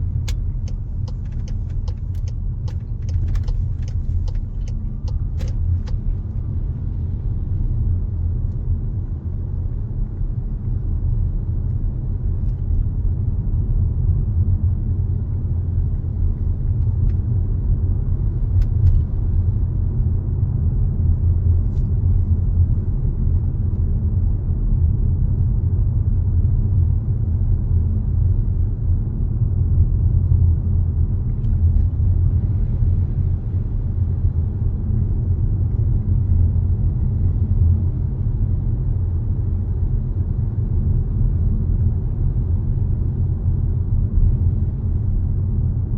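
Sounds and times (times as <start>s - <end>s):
car driving rumble: 0.0s - 45.9s.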